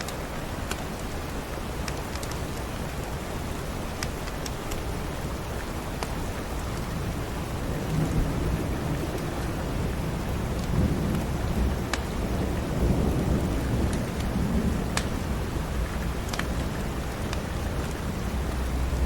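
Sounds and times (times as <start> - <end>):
steady rain: 0.0 - 19.0
rolling thunder rumble: 7.0 - 19.0
wood fire crackling: 13.7 - 19.0.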